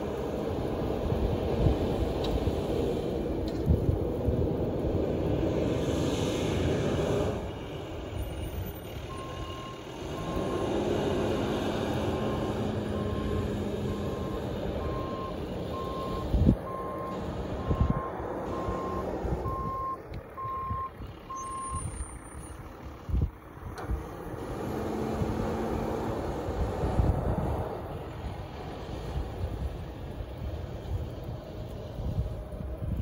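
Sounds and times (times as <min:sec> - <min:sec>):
low engine hum: 0:00.0 - 0:33.0
reversing alarm beeping: 0:09.1 - 0:10.6, 0:12.2 - 0:22.2.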